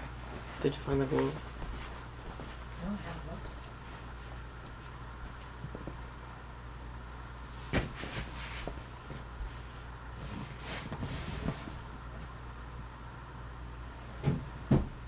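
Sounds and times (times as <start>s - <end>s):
ceiling fan humming: 0.0s - 15.0s
household scuffing noises: 0.3s - 2.7s, 7.5s - 12.3s.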